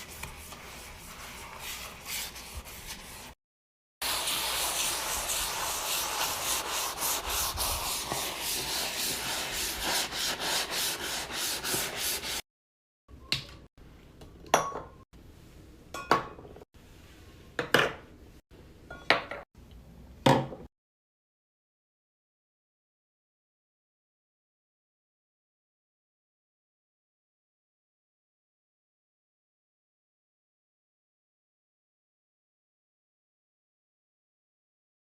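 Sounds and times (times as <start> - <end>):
scrubbing a surface: 0.0 - 3.4, 4.0 - 12.4.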